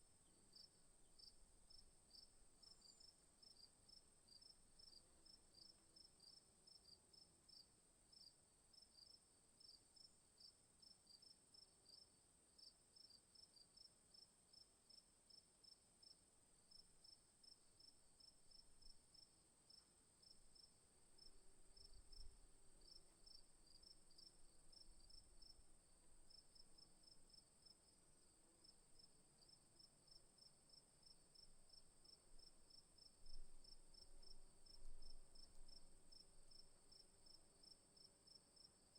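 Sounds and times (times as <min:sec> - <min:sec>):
insect chorus: 0:00.3 - 0:08.3, 0:16.0 - 0:38.9.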